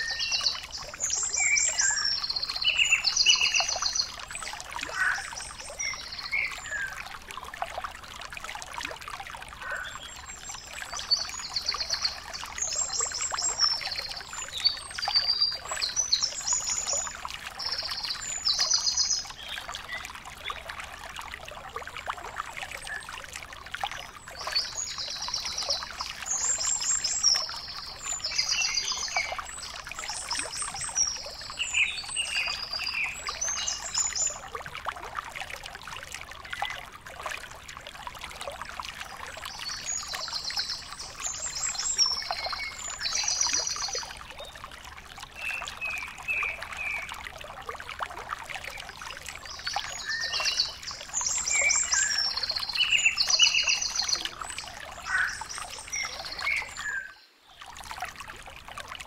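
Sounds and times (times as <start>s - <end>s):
songbird singing: 0.0s - 7.0s, 9.6s - 20.6s, 24.3s - 34.5s, 39.5s - 44.6s, 45.4s - 47.1s, 48.7s - 57.6s.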